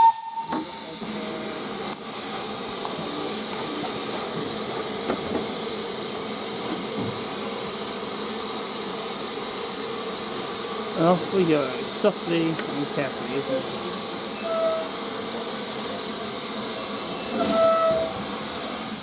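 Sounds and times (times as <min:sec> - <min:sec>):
steam locomotive hissing: 0:00.0 - 0:19.0.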